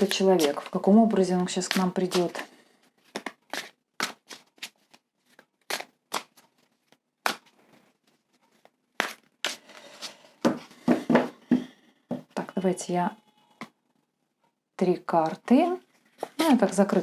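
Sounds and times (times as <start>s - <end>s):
cards being shuffled: 1.6s - 10.1s.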